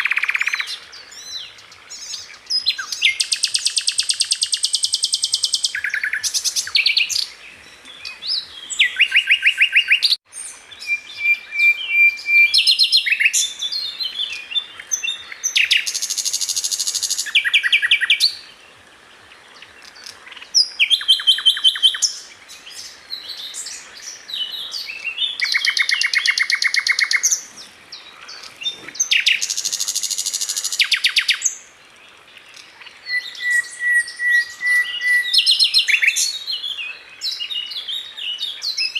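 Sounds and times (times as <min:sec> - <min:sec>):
flycatcher singing trills: 0:19.8 - 0:31.6.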